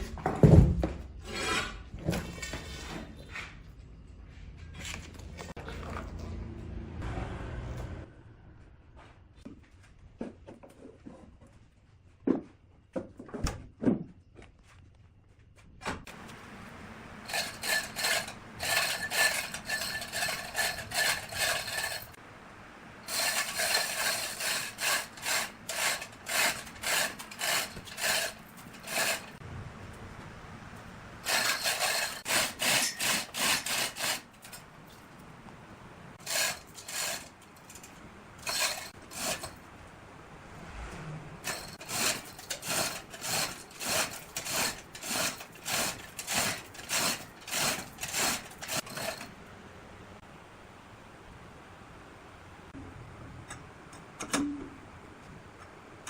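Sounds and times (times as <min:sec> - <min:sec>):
hand tool sawing wood: 0:17.3 - 0:22.2, 0:23.0 - 0:29.4, 0:31.2 - 0:34.6, 0:36.2 - 0:37.8, 0:38.4 - 0:39.6, 0:41.4 - 0:49.3.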